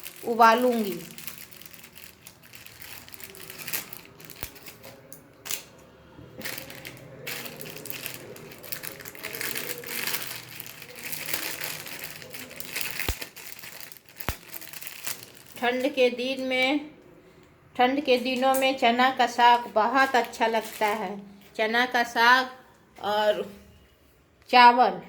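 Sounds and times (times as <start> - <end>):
rustling and crinkling handling noises: 0.0 - 16.2, 19.2 - 21.6.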